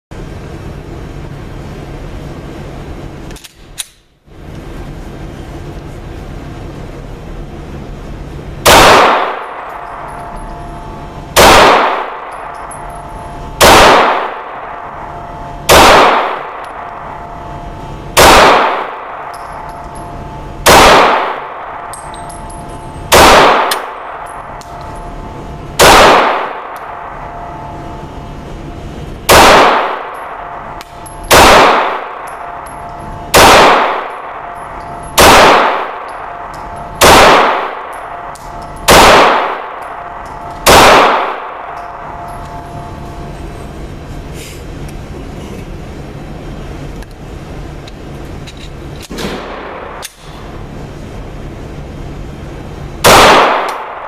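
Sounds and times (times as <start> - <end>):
steady background hum: 0.1 - 54.0
pistol shots echoing: 8.6 - 28.1, 29.3 - 43.3, 53.0 - 54.0.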